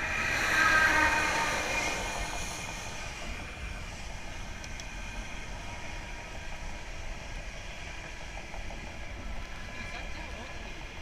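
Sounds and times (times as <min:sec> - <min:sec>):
passing whoosh: 0:00.0 - 0:03.8
wind and bicycle tyres rushing: 0:00.0 - 0:09.8.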